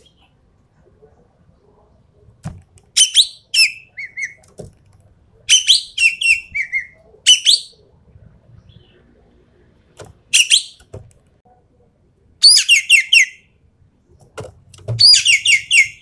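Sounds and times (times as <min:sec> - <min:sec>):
warbled bird notes: 0:10.3 - 0:10.9, 0:15.0 - 0:16.0.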